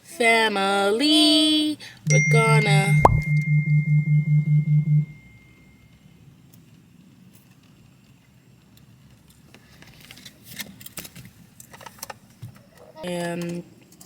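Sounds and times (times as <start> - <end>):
background hum: 0.1 - 5.8
light clicks and rustles: 9.1 - 14.0.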